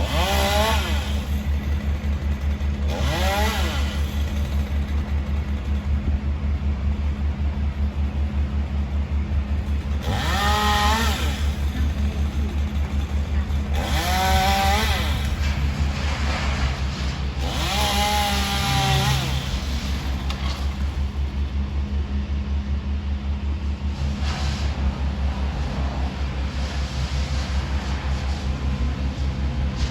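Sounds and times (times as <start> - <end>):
chainsaw revving: 0.0 - 6.0, 9.6 - 21.5
low engine running: 0.0 - 29.9.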